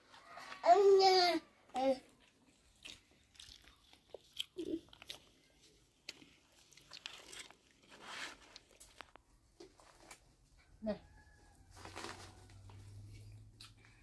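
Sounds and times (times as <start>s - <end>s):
person chewing food: 2.1s - 9.2s.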